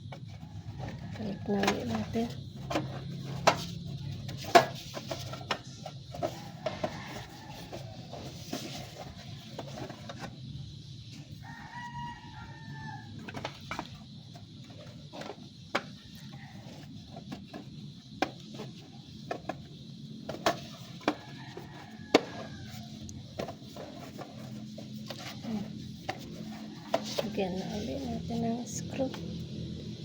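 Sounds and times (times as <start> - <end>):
rooster crowing: 0.4 - 2.2, 6.2 - 9.0, 11.3 - 13.5, 16.0 - 16.9, 20.9 - 28.1.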